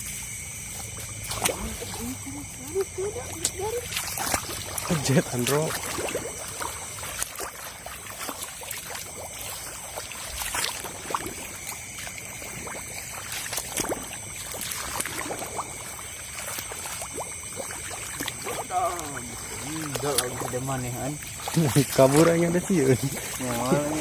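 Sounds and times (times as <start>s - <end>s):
high insect chorus: 0.0s - 24.0s
shallow water splashing: 0.0s - 24.0s.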